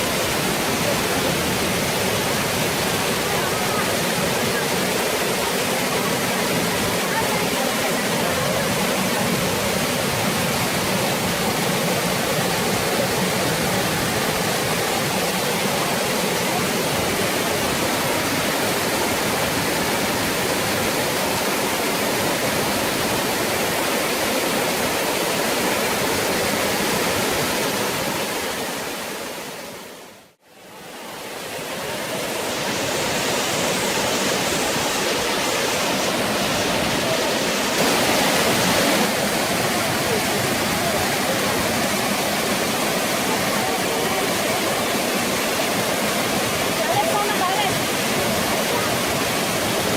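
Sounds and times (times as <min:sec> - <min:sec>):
waterfall rushing: 0:00.0 - 0:49.9.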